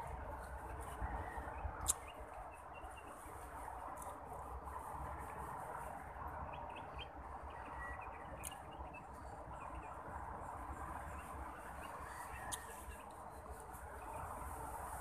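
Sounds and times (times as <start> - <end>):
outdoor ambience: 0.0 - 15.0
faint bird chirps: 6.4 - 10.0.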